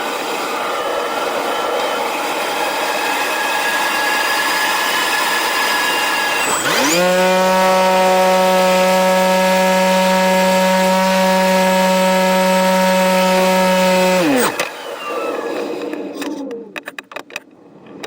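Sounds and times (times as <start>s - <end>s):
electric motor and propeller whine: 0.0s - 17.0s.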